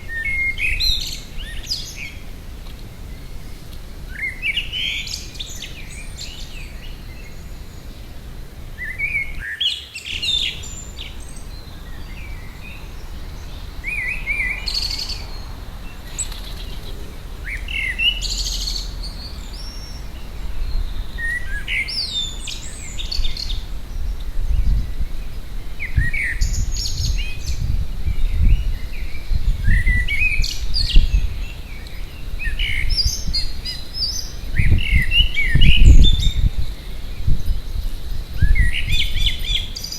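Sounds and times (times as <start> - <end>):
birds singing and calling: 0.0 - 39.9
loud irregular low rumbling: 10.2 - 30.0.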